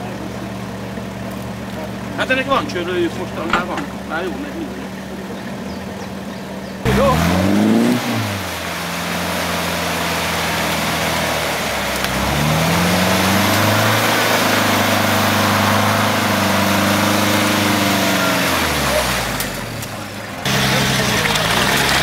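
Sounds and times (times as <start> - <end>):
engine revving hard: 6.8 - 22.0.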